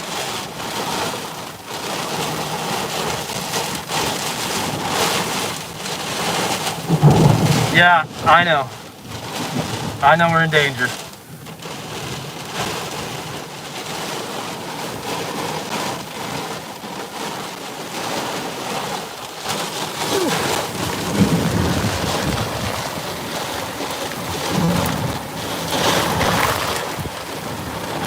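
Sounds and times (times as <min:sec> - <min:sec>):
heavy rain pounding a vehicle: 0:00.0 - 0:28.0
low thunder rumble: 0:06.1 - 0:10.1, 0:19.7 - 0:28.0.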